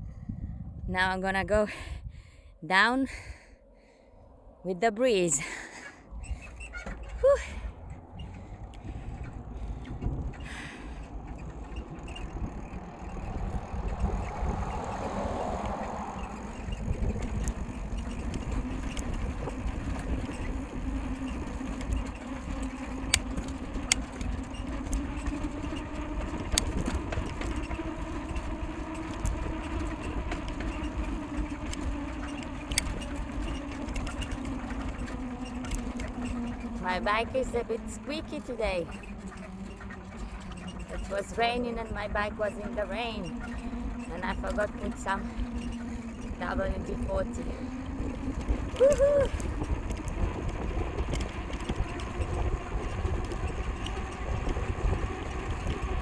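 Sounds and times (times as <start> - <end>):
wind rushing over microphone: 0.0 - 2.6, 6.0 - 32.1, 41.4 - 56.0
tyres humming: 5.0 - 23.5, 44.1 - 56.0
bike ticking and squeaking: 6.2 - 37.6, 38.4 - 56.0.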